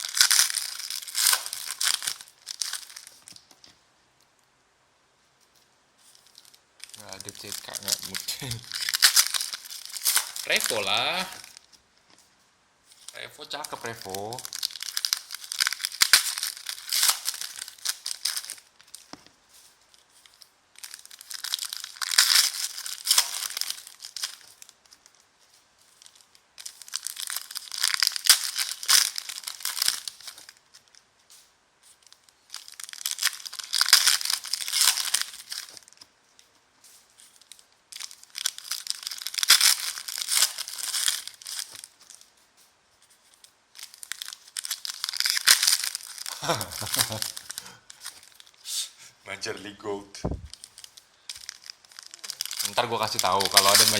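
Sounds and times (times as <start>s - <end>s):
card pack wrappers tearing: 0.0s - 3.4s, 6.2s - 11.7s, 13.0s - 25.0s, 26.0s - 30.6s, 32.0s - 36.0s, 37.2s - 42.3s, 43.8s - 48.6s, 50.4s - 53.9s.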